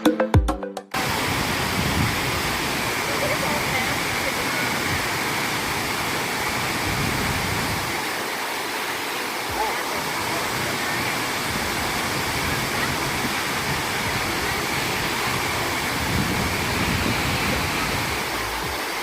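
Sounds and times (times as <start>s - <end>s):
waterfall rushing: 0.9s - 19.0s.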